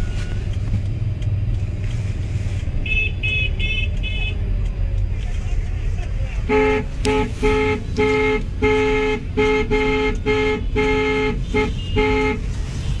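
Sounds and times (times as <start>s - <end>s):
car horn honking: 2.8s - 4.4s, 6.4s - 13.0s.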